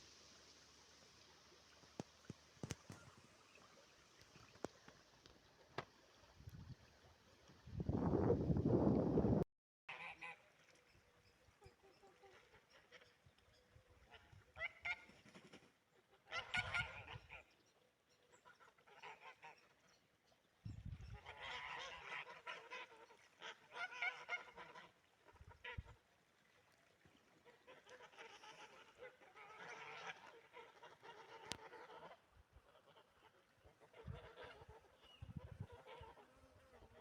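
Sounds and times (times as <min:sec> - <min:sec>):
geese honking: 0:16.3 - 0:17.4, 0:21.2 - 0:25.1.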